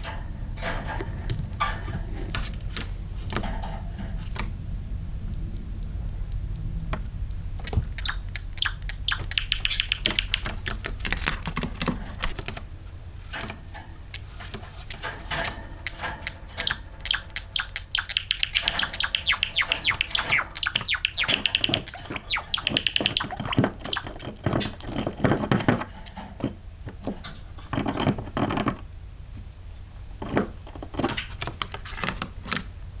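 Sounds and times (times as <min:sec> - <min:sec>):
sparrow singing clicks and trills: 0:07.6 - 0:12.6, 0:13.3 - 0:26.3, 0:31.0 - 0:32.6.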